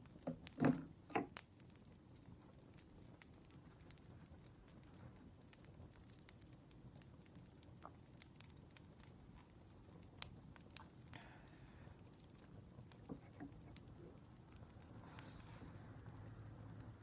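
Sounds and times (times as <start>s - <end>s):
wood fire crackling: 0.0s - 17.0s
soft rustle: 12.0s - 17.0s.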